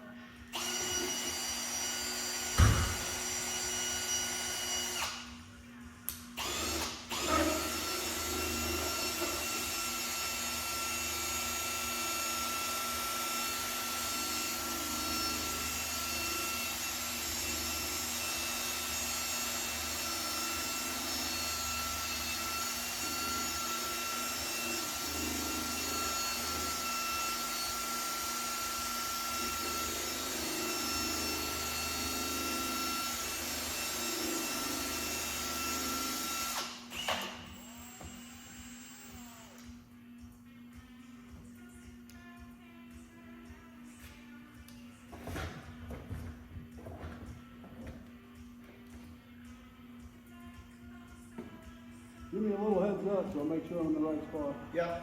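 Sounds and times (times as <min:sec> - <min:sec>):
electric power tool running: 0:00.5 - 0:05.3, 0:06.4 - 0:39.8.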